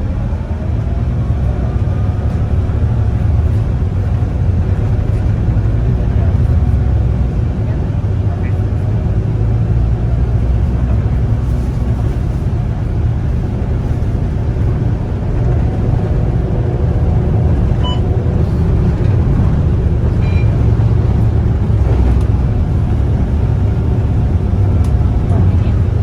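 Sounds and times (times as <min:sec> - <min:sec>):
bus engine rumble: 0:00.0 - 0:26.0
short faint beeps: 0:17.8 - 0:18.0.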